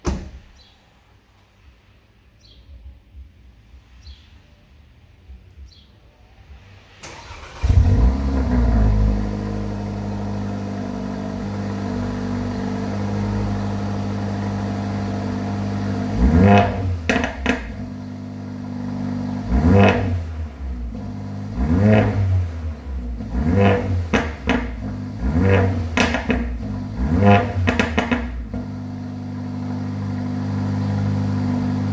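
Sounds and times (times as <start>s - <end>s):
car engine starting and revving: 6.8s - 31.9s.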